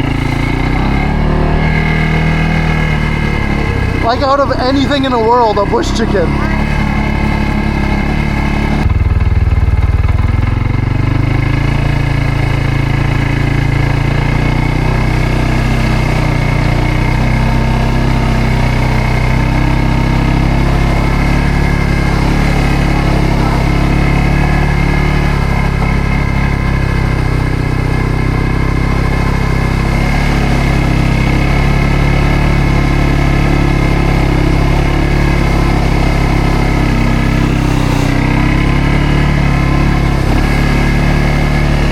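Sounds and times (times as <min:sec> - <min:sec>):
atv engine running: 0:00.0 - 0:41.9.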